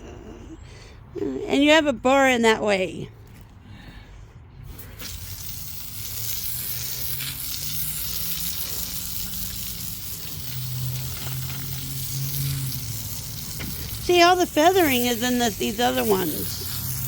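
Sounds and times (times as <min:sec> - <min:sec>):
loud even hiss: 0:04.7 - 0:17.0
machine engine humming: 0:06.8 - 0:17.0.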